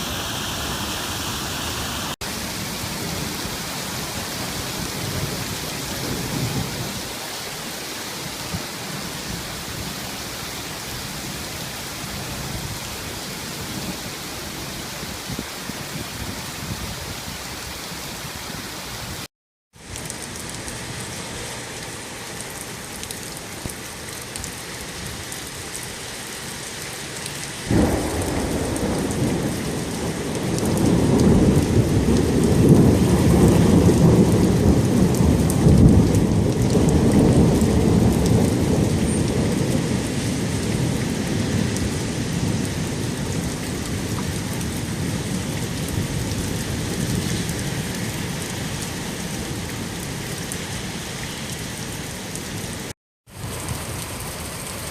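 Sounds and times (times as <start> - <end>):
heavy rain: 0.0 - 54.9
thunder rumbling: 27.7 - 50.1.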